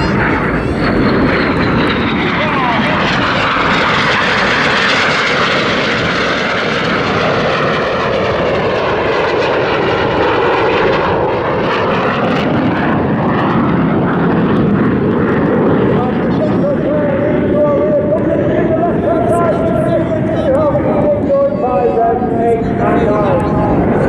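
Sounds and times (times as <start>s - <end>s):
jets flying past: 0.0s - 9.2s.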